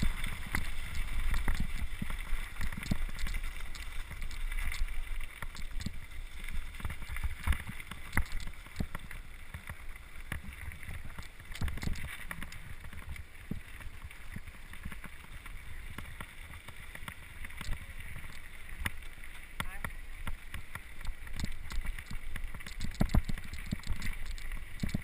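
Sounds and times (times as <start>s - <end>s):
wind on microphone: 0.0s - 3.2s
bike rumbling over dirt trail: 0.0s - 4.8s.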